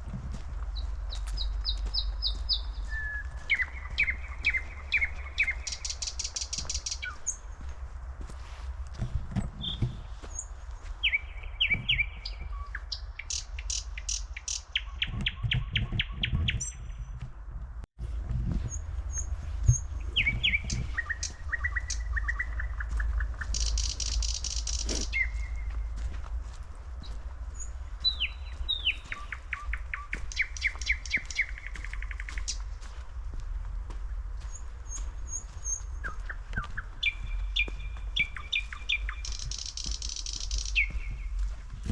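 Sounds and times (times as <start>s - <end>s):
songbirds chirping: 0.0s - 17.5s, 18.5s - 41.9s
high chips of small birds: 0.7s - 7.6s, 9.6s - 16.8s, 18.7s - 25.8s, 27.6s - 32.8s, 34.5s - 41.9s
steady low rumble: 14.9s - 41.9s.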